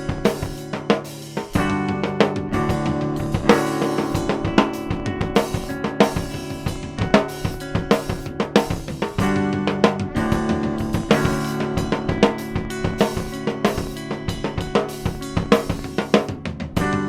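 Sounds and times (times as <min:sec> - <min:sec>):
band music: 0:00.0 - 0:17.0
drum kit playing: 0:00.0 - 0:17.0.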